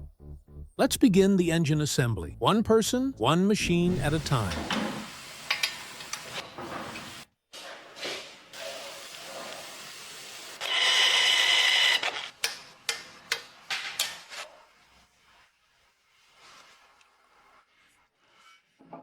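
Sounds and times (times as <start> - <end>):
power tool whirring: 10.6 - 12.2.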